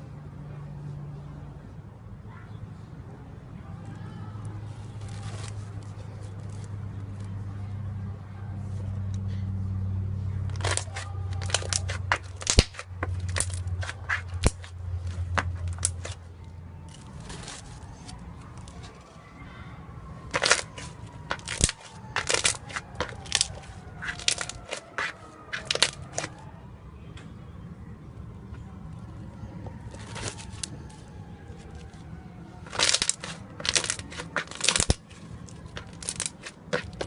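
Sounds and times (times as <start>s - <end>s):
slime popping and crackling: 10.5s - 14.6s, 20.3s - 26.3s, 32.7s - 35.0s.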